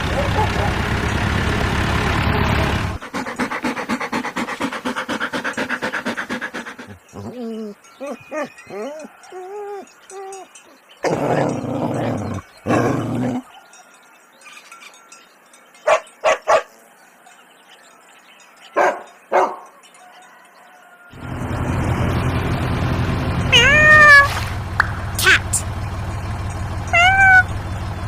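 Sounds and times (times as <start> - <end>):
dog barking: 0.1 - 0.8, 15.9 - 16.7, 18.8 - 19.8
dog whining yelps: 6.1 - 13.5, 23.5 - 24.5, 26.9 - 27.7.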